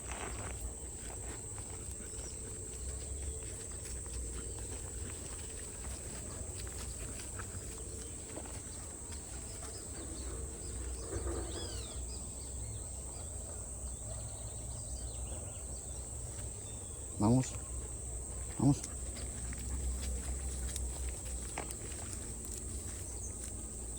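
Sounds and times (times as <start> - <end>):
bird chirps: 9.5 - 13.3.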